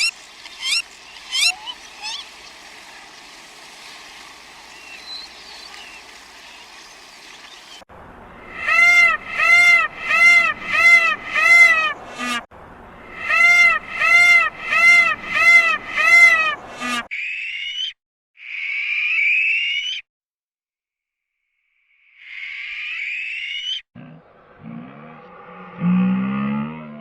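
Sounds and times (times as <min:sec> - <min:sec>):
animal calling: 0:00.0 - 0:02.5
rough rising animal sounds: 0:24.0 - 0:27.0.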